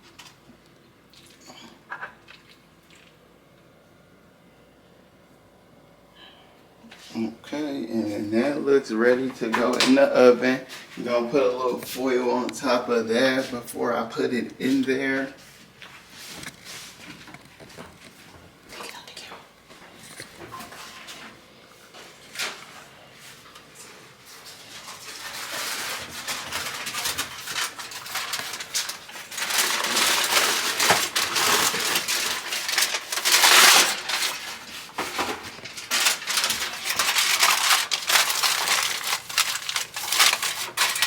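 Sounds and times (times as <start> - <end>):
aluminium foil crinkling: 24.3 - 41.0.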